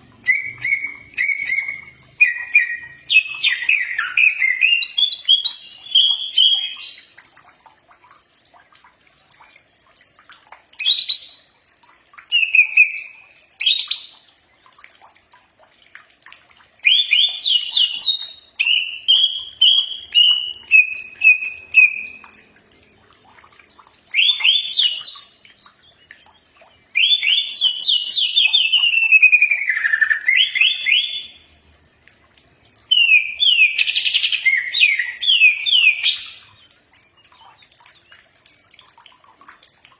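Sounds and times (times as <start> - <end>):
bird singing chirps and whistles: 0.2 - 7.3, 10.8 - 11.4, 12.3 - 14.2, 16.8 - 22.3, 24.1 - 31.4, 32.9 - 36.7.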